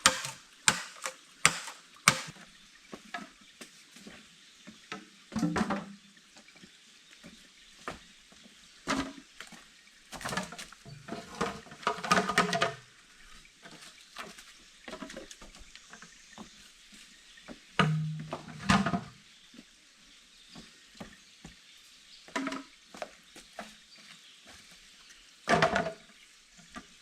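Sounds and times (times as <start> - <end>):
knocks and clatter of objects: 0.0 - 2.4, 10.2 - 12.8, 17.8 - 19.2, 25.5 - 26.0.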